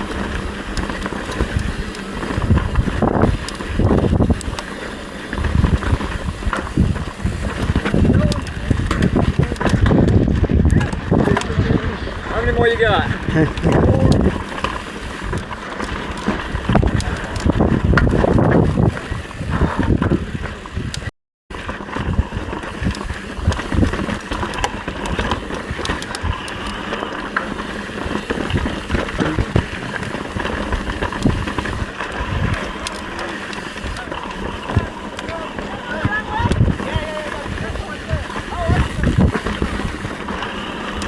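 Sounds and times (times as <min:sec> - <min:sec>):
bike rattles and knocks: 0:00.0 - 0:41.0
bike tyres on dirt trail: 0:00.0 - 0:41.0
wind on microphone: 0:00.8 - 0:04.6, 0:05.3 - 0:15.4, 0:16.5 - 0:21.1, 0:28.2 - 0:32.8, 0:35.9 - 0:41.0.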